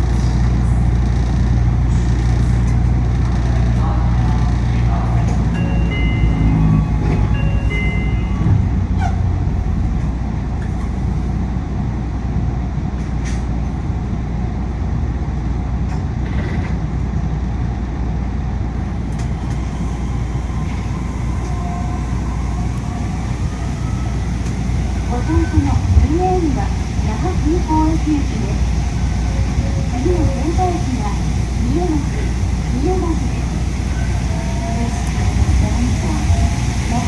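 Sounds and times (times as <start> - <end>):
monorail running gear rumble: 0.0 - 37.0.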